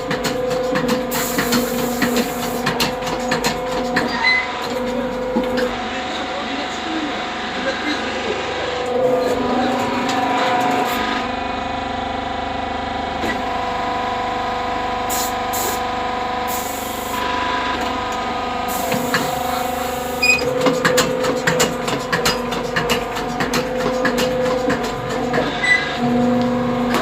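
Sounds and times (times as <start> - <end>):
fast knocks and clatter: 0.0 - 5.7, 20.5 - 25.6
press machine humming: 0.0 - 27.0.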